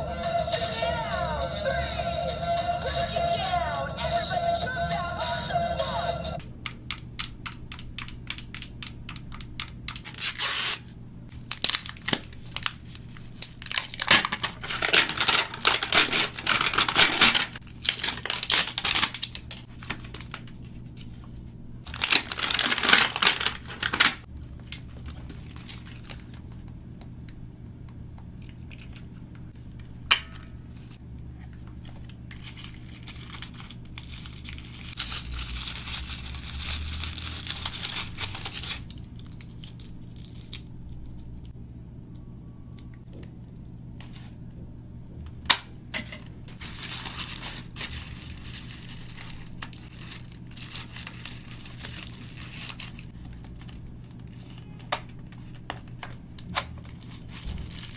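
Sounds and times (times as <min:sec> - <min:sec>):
packaging tearing and crinkling: 0:10.0 - 0:20.6, 0:21.9 - 0:26.4, 0:32.0 - 0:41.3, 0:46.5 - 0:57.9.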